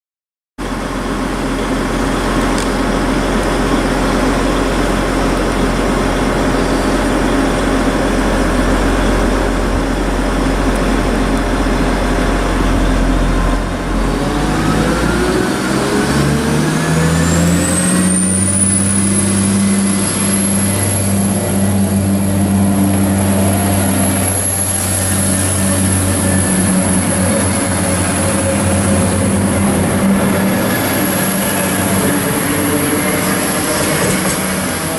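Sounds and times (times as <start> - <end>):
diesel train engine drone: 0.6 - 34.9
thin high whine: 17.0 - 34.9.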